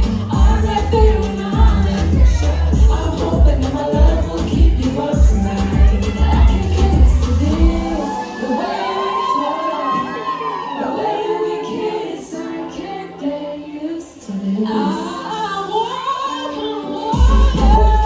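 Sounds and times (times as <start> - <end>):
heavy bass beat: 0.0 - 8.0, 17.2 - 18.0
people singing pop music live: 0.0 - 18.0.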